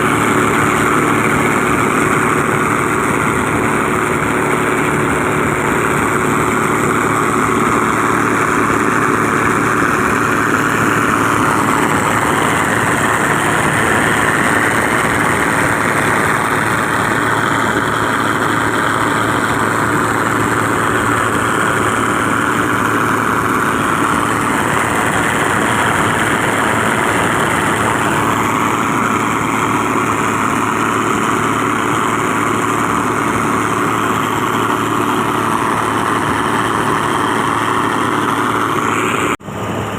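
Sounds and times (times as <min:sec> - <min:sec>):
motor boat engine droning: 0:00.0 - 0:39.9.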